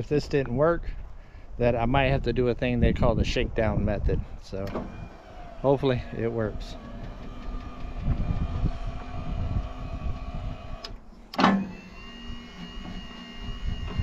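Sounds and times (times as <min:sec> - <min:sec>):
sharp mechanical clunk: 0:04.6 - 0:05.4, 0:10.8 - 0:11.8
sawmill mechanism running: 0:04.6 - 0:14.0.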